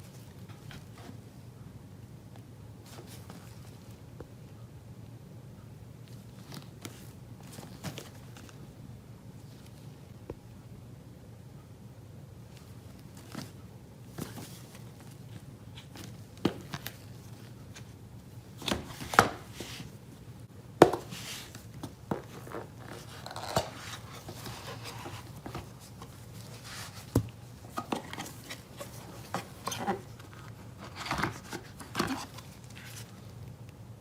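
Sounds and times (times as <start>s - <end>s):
packaging rustling: 21.0s - 33.4s.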